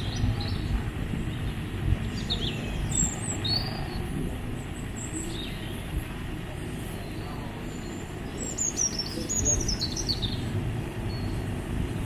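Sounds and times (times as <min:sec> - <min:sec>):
low rumbling noise: 0:00.0 - 0:12.0
birds chirping: 0:06.8 - 0:12.0.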